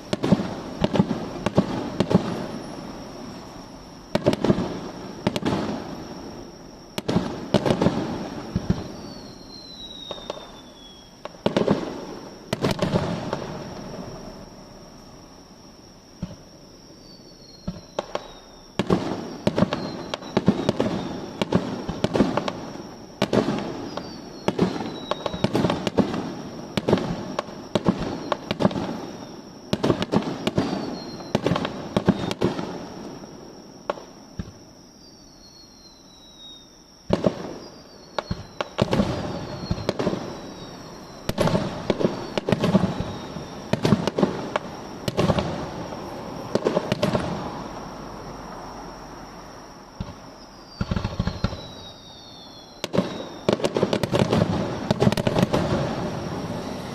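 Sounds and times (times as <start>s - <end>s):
thin falling whistles: 8.4s - 15.2s, 16.9s - 21.5s, 23.7s - 25.6s, 30.4s - 33.3s, 34.4s - 36.8s, 37.4s - 43.8s, 50.1s - 53.6s.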